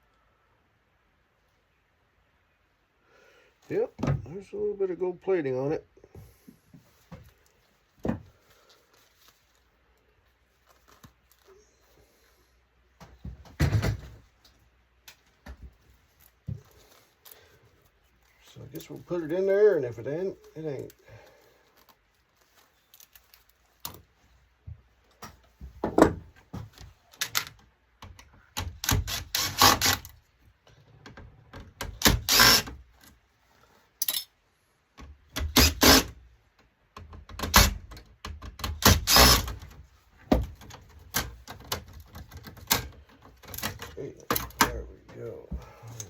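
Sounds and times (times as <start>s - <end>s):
hand tools clicking and clattering: 34.0s - 34.4s.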